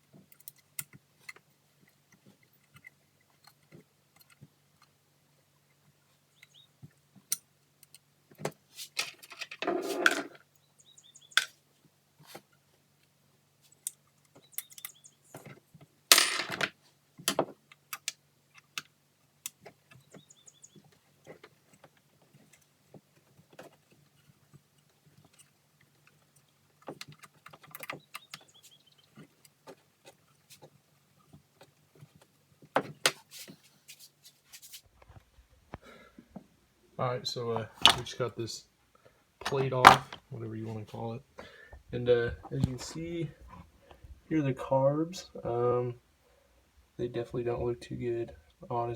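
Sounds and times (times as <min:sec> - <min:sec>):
hand tools and metal parts clinking: 0:07.2 - 0:10.6, 0:13.7 - 0:32.3.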